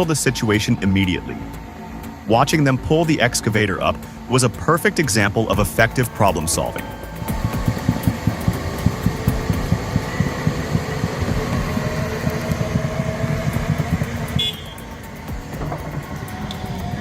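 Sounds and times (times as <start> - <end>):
excavator diesel engine clattering: 0.0 - 17.0
faint steady whine: 0.0 - 17.0.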